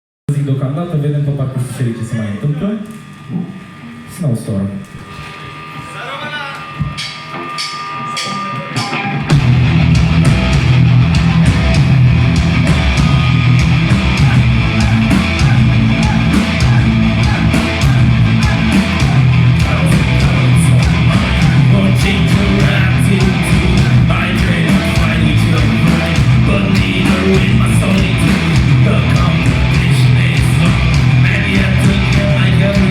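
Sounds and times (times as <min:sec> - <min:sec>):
rock band playing live: 0:06.6 - 0:32.9.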